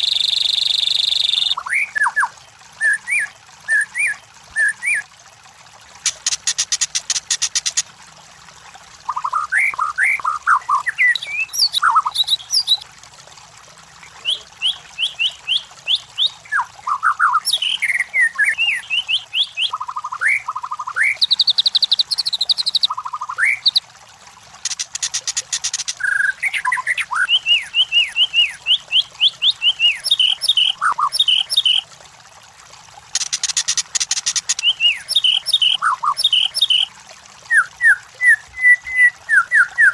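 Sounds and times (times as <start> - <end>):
bird singing whistled notes: 0.0 - 2.2, 9.6 - 12.8, 14.2 - 23.8, 26.0 - 31.8, 34.5 - 36.9, 37.6 - 39.9.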